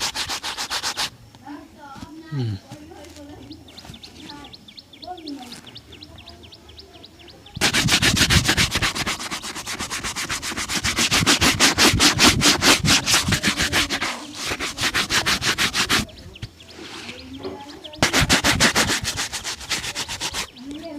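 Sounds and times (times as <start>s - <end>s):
shoe being buffed: 0.0s - 1.1s, 7.6s - 16.1s, 18.0s - 20.6s.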